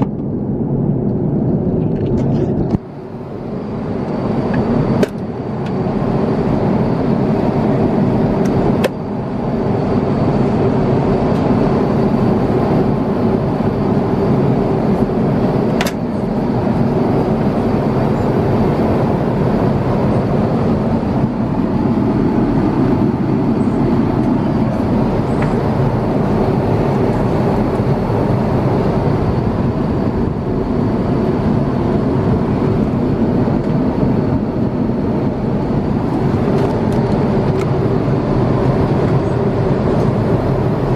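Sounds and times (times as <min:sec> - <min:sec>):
airliner cabin noise: 0:00.0 - 0:40.9.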